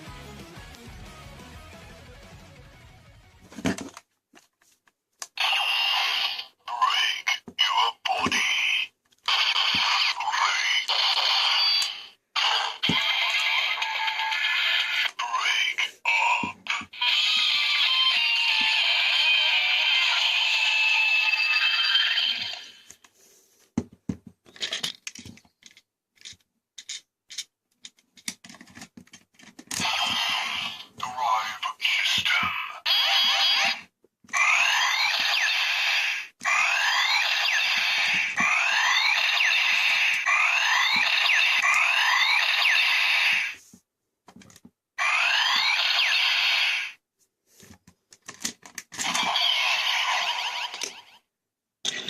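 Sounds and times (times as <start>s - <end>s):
electronic toy sound effects: 5.4s - 22.9s, 29.8s - 43.6s, 45.0s - 47.0s, 49.0s - 51.3s
plastic toy clicks and scrapes: 24.5s - 31.0s, 47.7s - 51.1s.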